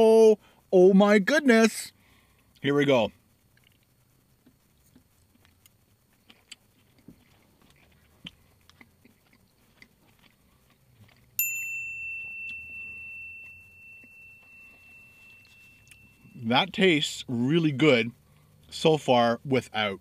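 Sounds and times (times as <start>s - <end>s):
chewing: 3.5s - 11.4s
high chime ringing: 11.4s - 16.9s.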